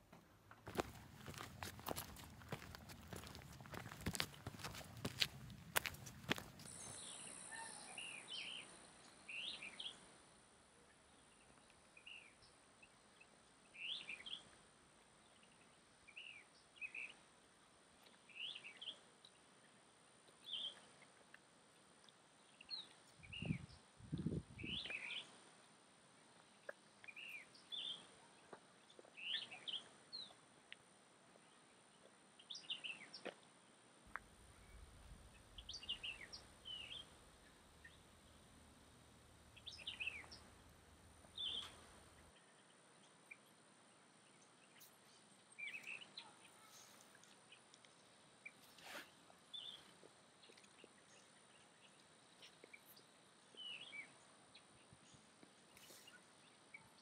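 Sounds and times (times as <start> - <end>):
bird chirping: 5.8 - 10.0, 34.1 - 43.6, 44.2 - 47.7.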